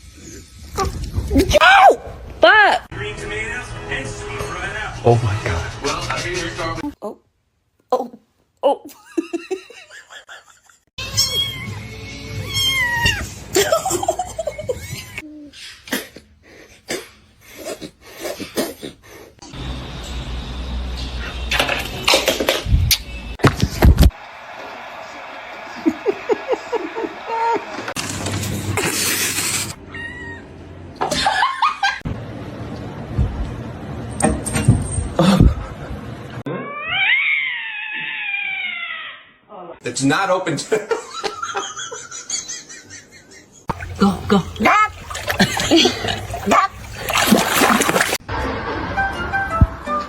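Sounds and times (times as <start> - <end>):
cat meowing: 11.0 - 13.3
people laughing: 13.5 - 15.2, 25.4 - 28.0, 40.7 - 48.2.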